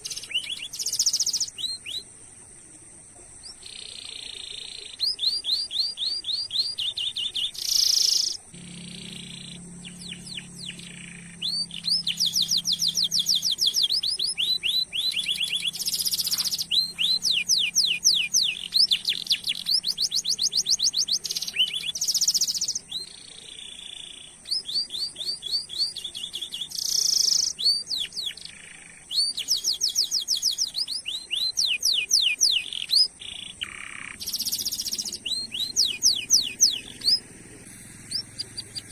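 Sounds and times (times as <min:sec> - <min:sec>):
canary singing trills: 0:00.0 - 0:02.6, 0:03.3 - 0:38.9.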